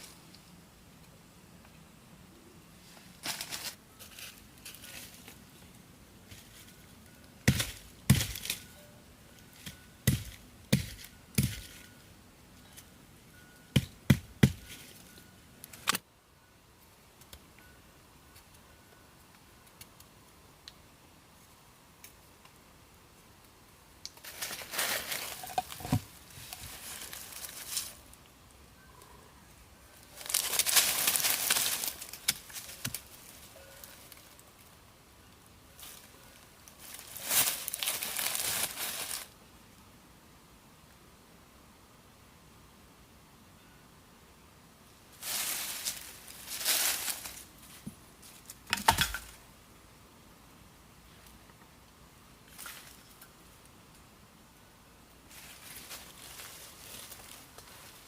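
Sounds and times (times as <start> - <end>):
rustling or scraping: 2.8 - 5.6, 6.2 - 12.9, 14.6 - 15.9, 24.2 - 28.2, 30.0 - 34.4, 35.8 - 39.3, 45.1 - 49.4, 55.3 - 58.0.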